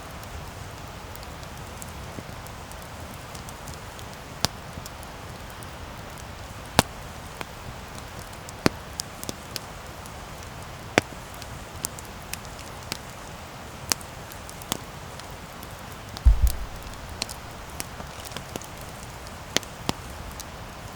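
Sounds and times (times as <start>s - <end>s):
wood crackling and popping: 16.3s - 20.9s
campfire hissing: 16.4s - 20.9s.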